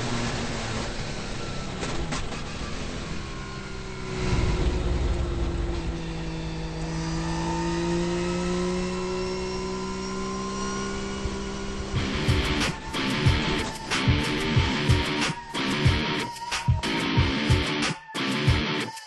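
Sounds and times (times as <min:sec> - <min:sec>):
race car rotary engine: 0:00.0 - 0:18.8.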